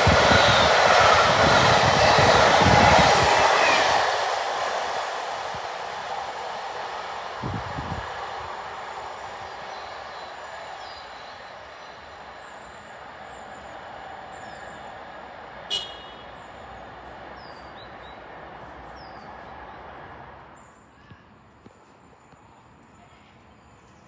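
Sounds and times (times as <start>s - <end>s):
train rumbling: 0.0s - 20.7s
birds chirping: 8.0s - 19.9s.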